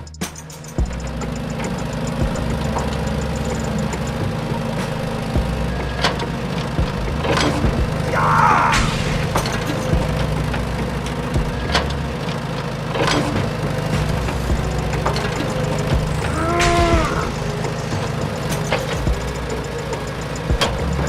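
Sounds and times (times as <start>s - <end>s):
sharp clicks and knocks: 8.7s - 19.3s
rising and falling pitched sound: 13.3s - 21.0s.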